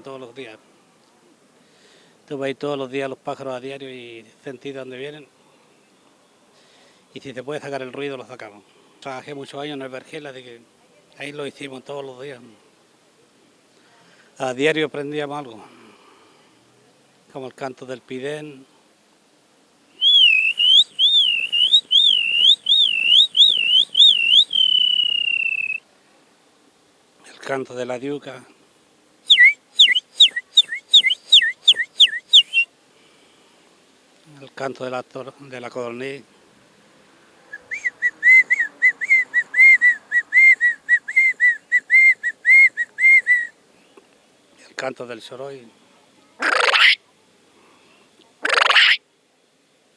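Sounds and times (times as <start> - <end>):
man whistling bird call: 20.0 - 25.8, 29.3 - 32.7, 37.5 - 43.6, 48.5 - 49.0.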